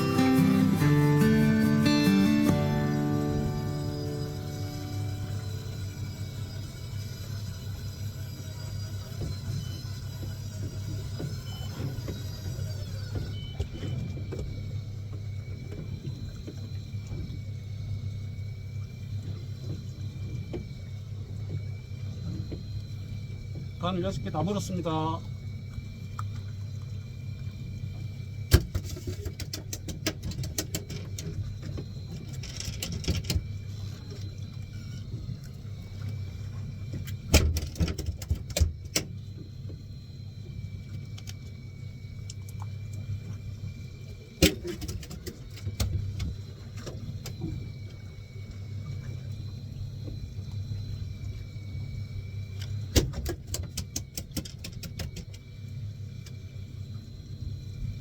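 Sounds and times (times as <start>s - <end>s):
faint high whine: 0.0s - 29.4s, 31.1s - 53.2s, 55.0s - 58.0s
boat engine running: 0.0s - 29.9s.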